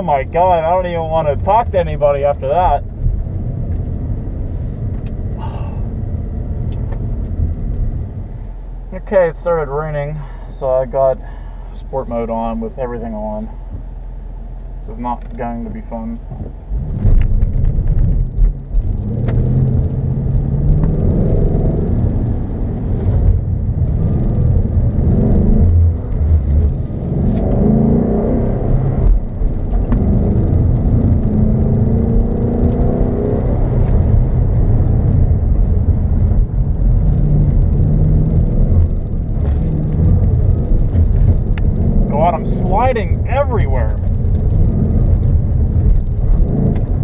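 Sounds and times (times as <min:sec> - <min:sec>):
car engine revving: 0:14.6 - 0:47.0.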